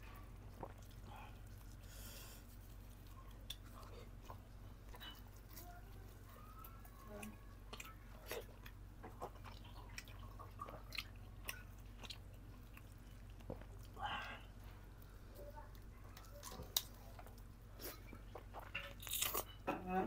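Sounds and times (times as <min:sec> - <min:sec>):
person chewing wetly: 0:00.1 - 0:19.6
meat being torn by hand: 0:18.9 - 0:19.5.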